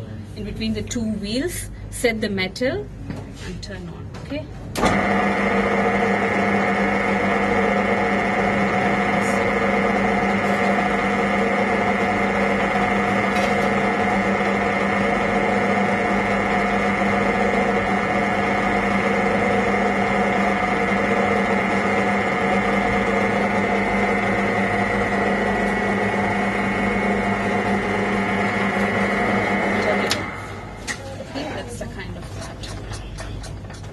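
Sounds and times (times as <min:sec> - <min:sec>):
metal lathe humming and whining: 0:04.9 - 0:31.0.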